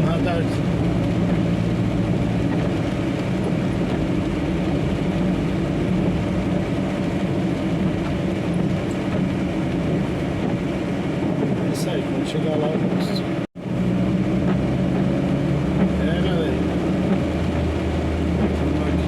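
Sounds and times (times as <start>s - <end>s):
truck diesel engine drone: 13.0s - 19.0s.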